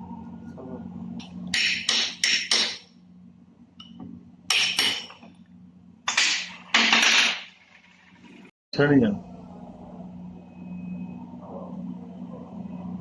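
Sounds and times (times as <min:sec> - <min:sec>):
hammer strikes on metal: 0:01.5 - 0:03.0, 0:04.5 - 0:05.2
low steady hum: 0:08.0 - 0:13.0.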